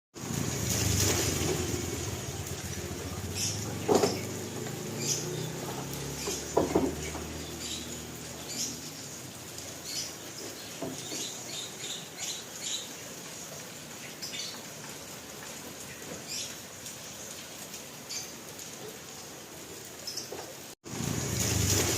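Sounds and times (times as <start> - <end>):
heavy rain: 0.2 - 21.9
loud knocks: 3.7 - 4.4, 6.2 - 7.3.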